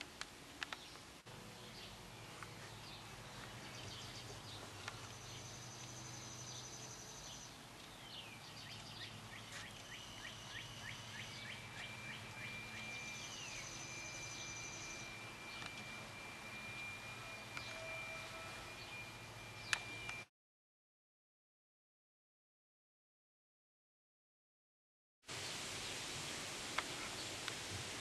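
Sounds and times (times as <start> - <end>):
low steady hum: 0.0 - 20.3
faint bird chirps and trills: 0.6 - 20.2.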